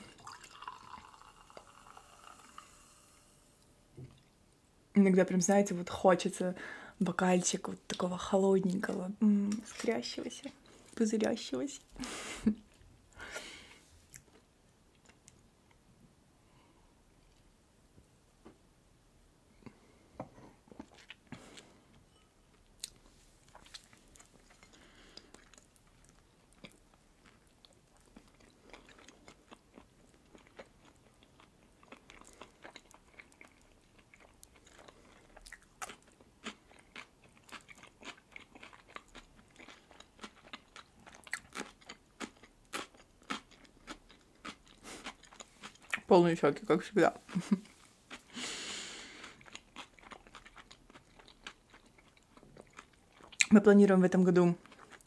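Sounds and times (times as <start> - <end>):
wet mouth chewing: 22.8 - 46.1, 49.1 - 53.5.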